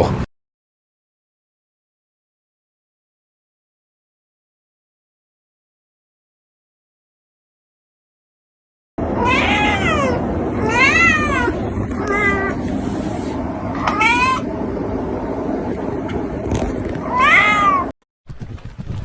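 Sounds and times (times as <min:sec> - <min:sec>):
cat meowing: 0:09.2 - 0:12.6, 0:13.8 - 0:14.5, 0:17.0 - 0:17.9.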